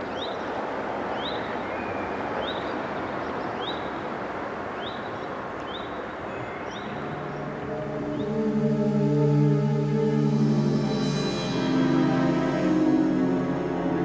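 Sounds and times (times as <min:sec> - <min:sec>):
bird chirping: 0:00.0 - 0:04.1, 0:04.7 - 0:08.6
rushing background noise: 0:00.0 - 0:14.0.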